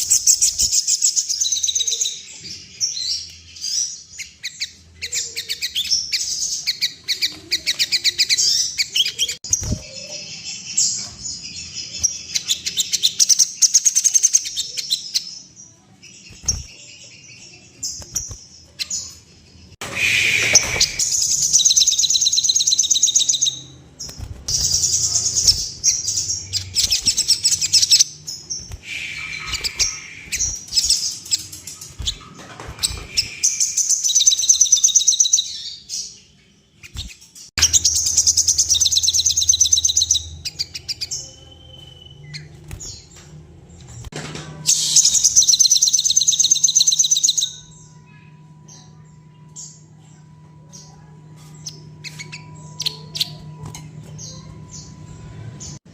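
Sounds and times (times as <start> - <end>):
bird singing fast trills: 20.0 - 32.2, 32.8 - 36.2, 36.8 - 43.0, 44.7 - 50.0.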